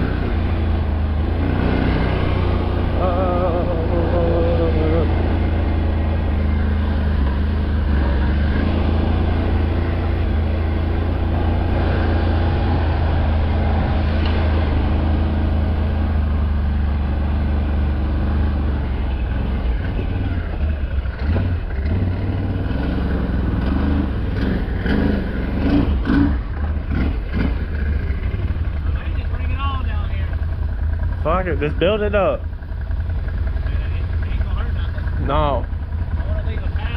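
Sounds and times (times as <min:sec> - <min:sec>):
engine running with deep rumble: 0:00.0 - 0:36.9.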